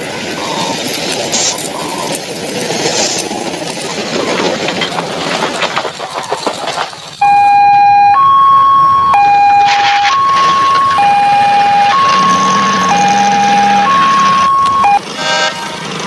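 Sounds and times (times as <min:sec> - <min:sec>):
rumbling clattering vehicle: 0:00.0 - 0:07.4, 0:09.1 - 0:16.0
two-tone police siren: 0:07.2 - 0:15.6.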